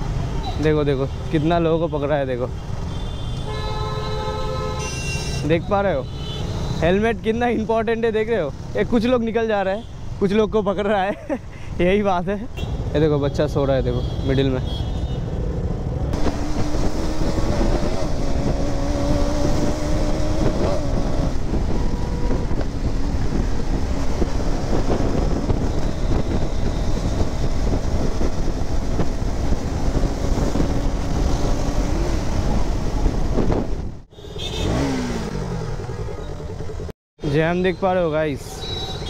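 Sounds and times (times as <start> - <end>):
heavy low traffic rumble: 4.2 - 38.6
vehicle engine hum: 15.2 - 36.9.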